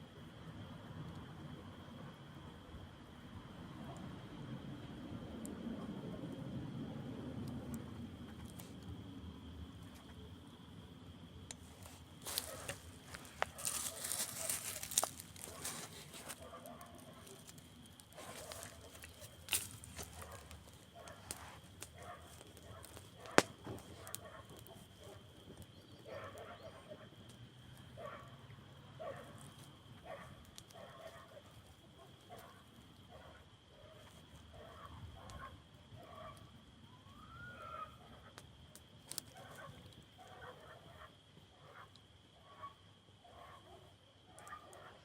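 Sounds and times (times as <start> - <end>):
campfire crackling and popping: 11.4 - 26.4, 38.4 - 40.1.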